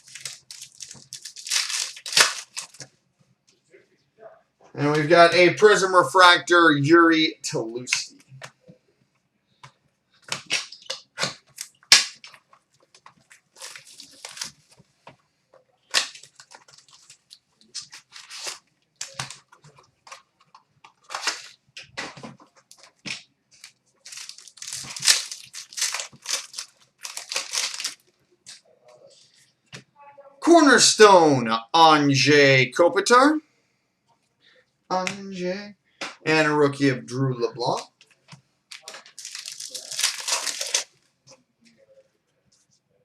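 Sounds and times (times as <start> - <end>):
cards rustling: 0.0 - 2.9, 10.2 - 14.9, 15.9 - 29.4, 37.6 - 38.0, 38.7 - 40.9
foil wrapper crackling: 0.0 - 2.9, 10.3 - 14.8, 15.9 - 20.2, 20.9 - 21.6, 23.6 - 28.0, 38.7 - 41.0.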